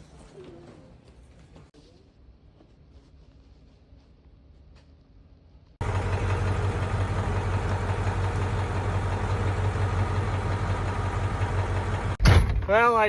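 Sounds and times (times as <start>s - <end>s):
diesel truck engine humming: 5.8s - 12.2s.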